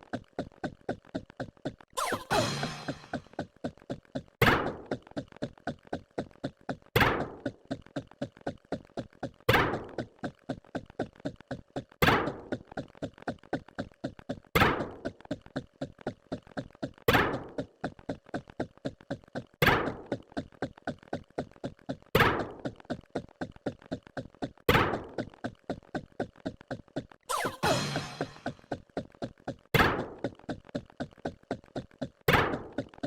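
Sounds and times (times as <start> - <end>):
fast faint clicking: 3.4 - 27.2.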